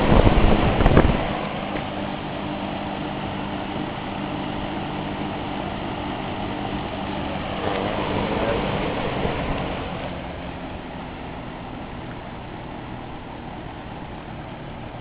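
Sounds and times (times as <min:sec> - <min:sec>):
fan air rushing: 0:00.0 - 0:15.0
low electric motor hum: 0:00.0 - 0:15.0.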